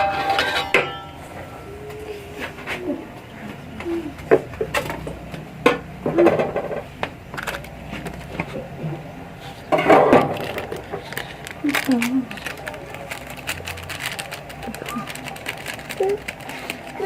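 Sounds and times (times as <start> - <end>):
kitchen utensils and dishes clinking: 0.0 - 1.5, 9.6 - 17.0
faint voices: 1.3 - 4.6, 7.4 - 17.0
scraping or rustling: 7.3 - 17.0.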